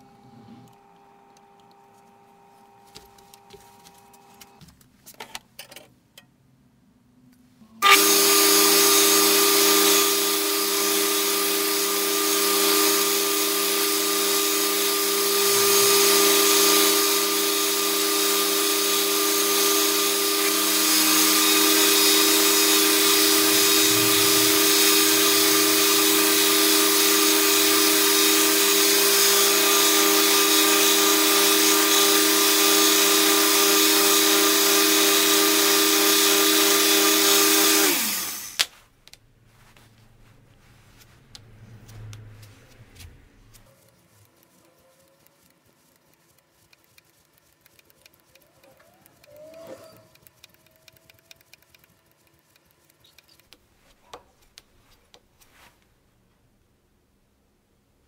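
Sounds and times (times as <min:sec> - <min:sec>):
electric power tool running: 0:00.0 - 0:04.6, 0:07.8 - 0:38.7.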